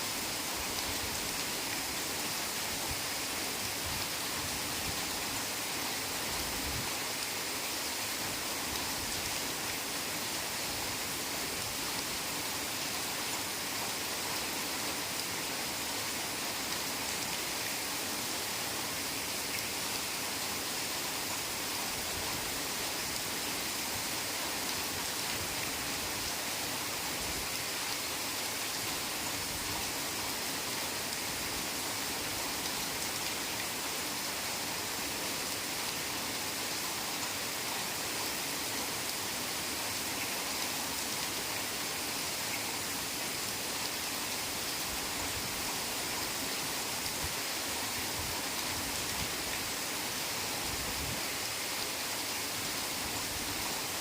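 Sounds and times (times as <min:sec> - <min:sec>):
heavy rain on foliage: 0:00.0 - 0:54.0.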